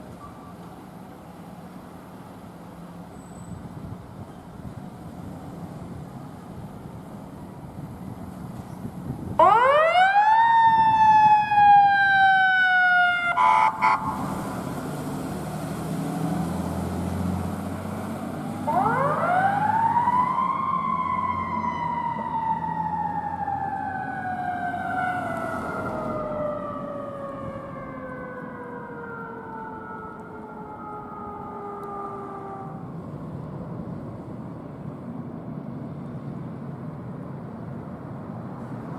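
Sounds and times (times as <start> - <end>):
truck engine rumbling: 0.0 - 38.9
horn blast: 13.4 - 14.5
fire truck siren winding: 18.7 - 32.8.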